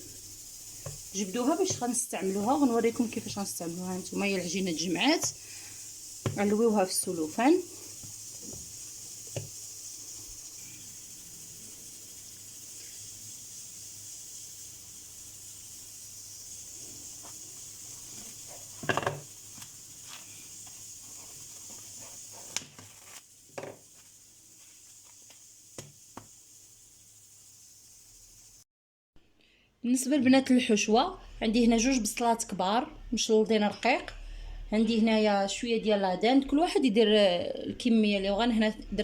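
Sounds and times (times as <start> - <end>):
steady hiss: 0.0 - 28.6
small knocks: 18.8 - 19.3
cling film rustling: 21.3 - 25.4.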